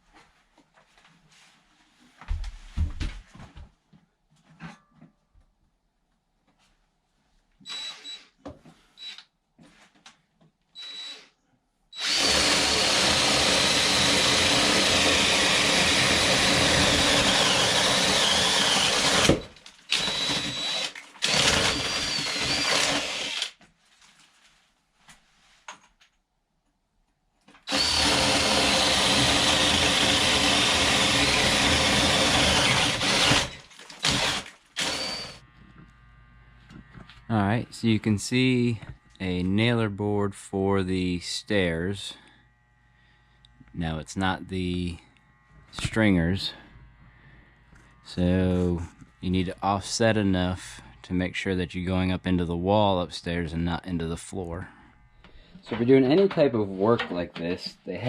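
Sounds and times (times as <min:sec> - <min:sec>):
power drill boring through wood: 0:12.0 - 0:23.6, 0:27.6 - 0:37.3.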